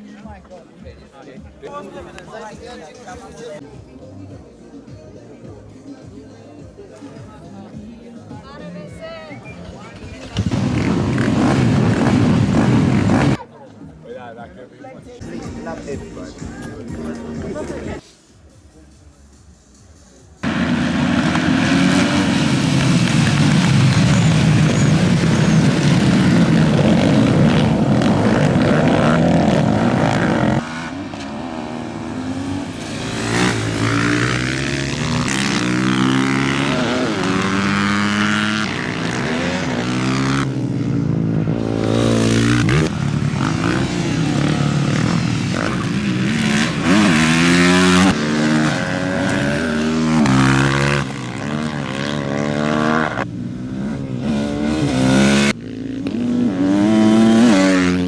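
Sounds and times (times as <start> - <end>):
motorcycle engines revving: 9.3 - 13.5, 15.2 - 18.1, 20.4 - 58.0.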